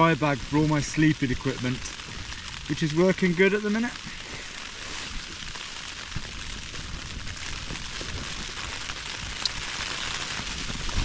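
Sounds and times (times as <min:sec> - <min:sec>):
rain pattering on tent fabric: 0:00.0 - 0:11.0
sharp tick: 0:09.4 - 0:09.6.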